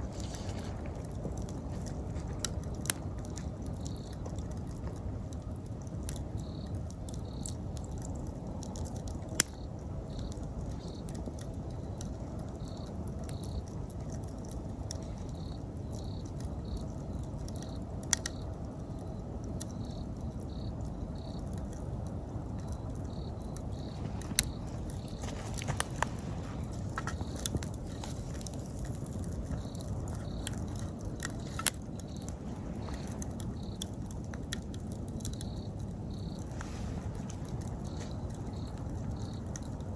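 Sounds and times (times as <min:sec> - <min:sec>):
campfire crackling and popping: 0:00.0 - 0:39.9
insect chirping in pulses: 0:22.6 - 0:39.9.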